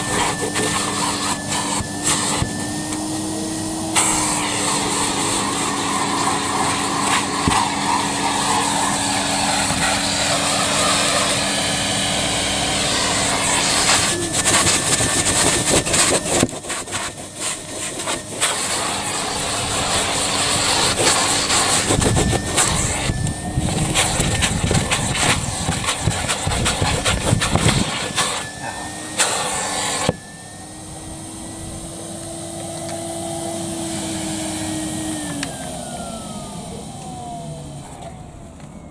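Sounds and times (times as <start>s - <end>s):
vacuum nozzle scraping and rattling: 0.0s - 30.4s
vacuum cleaner motor whine: 0.0s - 38.9s.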